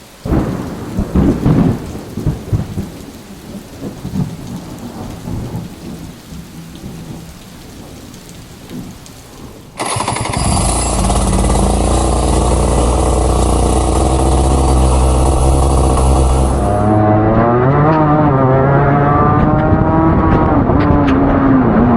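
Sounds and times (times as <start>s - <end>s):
heavy rain: 0.0s - 21.9s
thunder rumbling: 0.2s - 21.9s
kart engine running: 9.8s - 18.3s.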